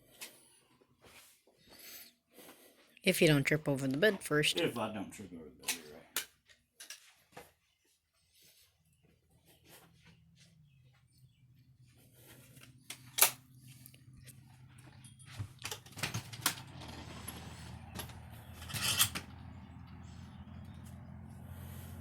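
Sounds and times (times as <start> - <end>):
handling clicks and knocks: 12.6 - 19.4.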